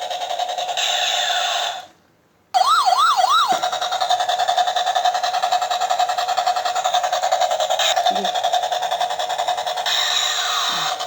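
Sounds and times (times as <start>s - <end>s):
electronic siren wails: 2.6s - 3.7s.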